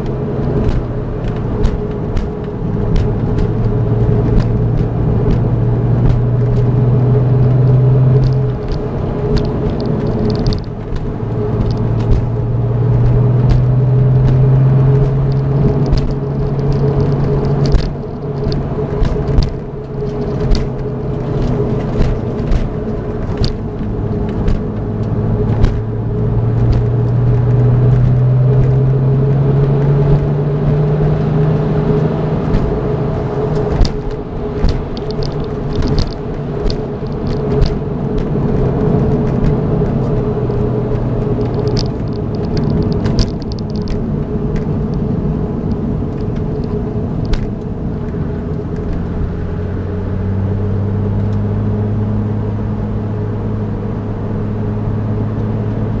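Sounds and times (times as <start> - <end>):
car engine revving hard: 0.0 - 43.3
sharp rattles and knocks: 0.0 - 49.8.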